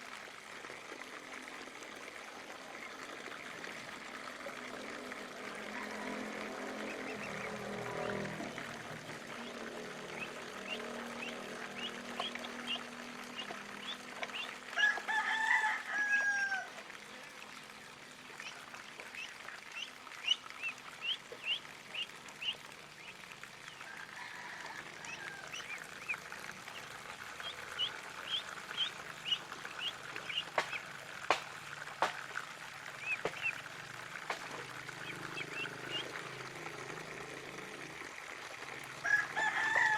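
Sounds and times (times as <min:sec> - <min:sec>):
drawn-out bird call: 0:05.6 - 0:16.7
ducklings peeping: 0:06.9 - 0:07.7, 0:09.3 - 0:14.6, 0:18.4 - 0:23.2, 0:25.5 - 0:30.8, 0:33.0 - 0:33.6, 0:35.0 - 0:36.1.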